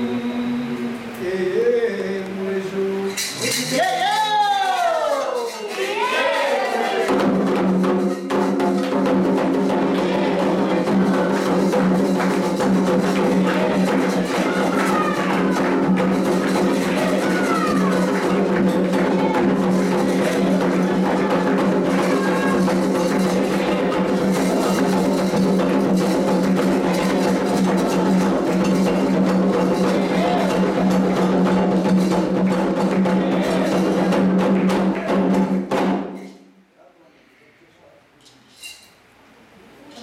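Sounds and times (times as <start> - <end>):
hand drums drumming: 6.8 - 36.3.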